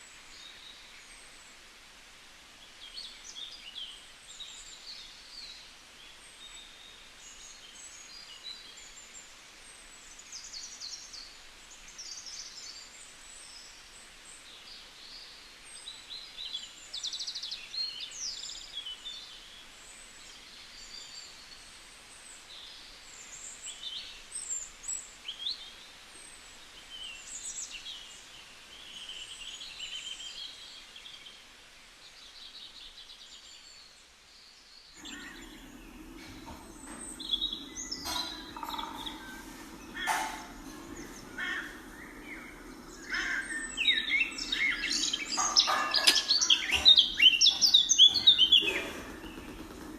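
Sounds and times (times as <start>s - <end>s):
steady background hiss: 0.0s - 49.9s
birds chirping and trilling: 34.9s - 49.9s.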